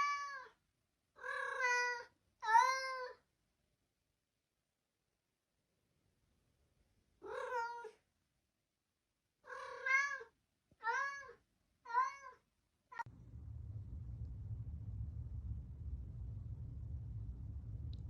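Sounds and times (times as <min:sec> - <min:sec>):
cat meowing: 0:00.0 - 0:00.6, 0:01.2 - 0:03.2, 0:09.5 - 0:13.0.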